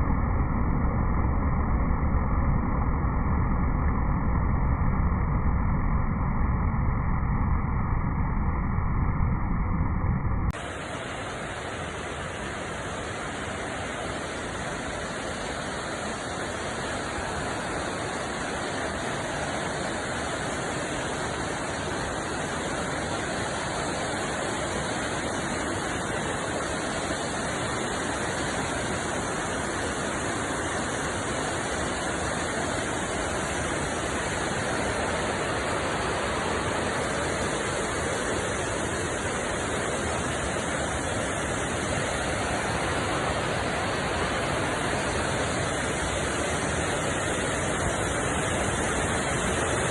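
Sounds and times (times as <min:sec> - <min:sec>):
waterfall rushing: 0:10.6 - 0:49.9.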